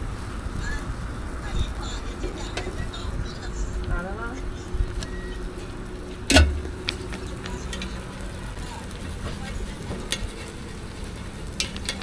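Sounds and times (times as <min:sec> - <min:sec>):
food sizzling on a griddle: 0:00.0 - 0:12.0.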